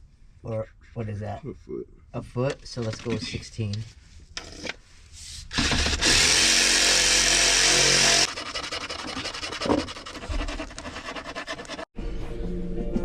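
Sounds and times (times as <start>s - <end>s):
power tool running: 5.5s - 9.8s
knock: 9.6s - 9.9s.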